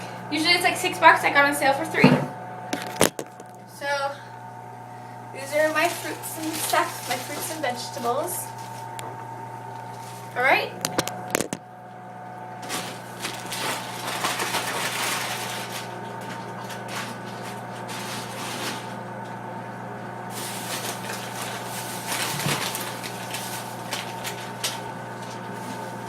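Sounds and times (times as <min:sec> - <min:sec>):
refrigerator hum: 0:00.0 - 0:26.0
groceries rustling and knocking: 0:05.5 - 0:08.9, 0:12.6 - 0:19.0, 0:20.3 - 0:26.0.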